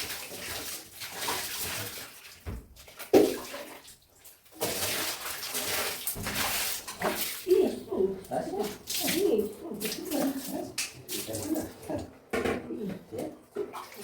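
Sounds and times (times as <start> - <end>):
water splashing and sloshing: 0.0 - 14.0.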